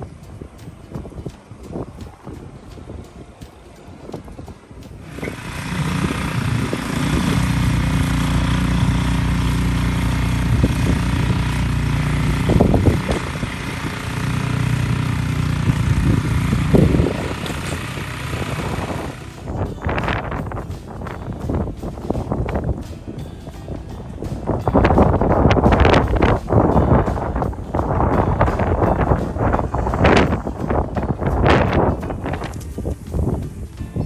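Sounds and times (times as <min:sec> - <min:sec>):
wind on microphone: 0:00.0 - 0:34.0
combustion engine running: 0:00.9 - 0:20.7.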